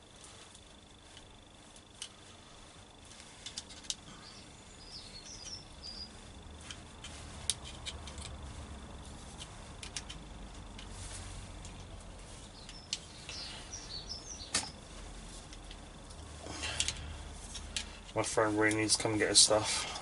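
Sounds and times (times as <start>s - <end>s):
hands clicking tools and wires: 0.1s - 2.3s, 3.0s - 14.8s, 15.4s - 20.0s
bird chirps: 4.1s - 6.3s, 12.3s - 14.8s.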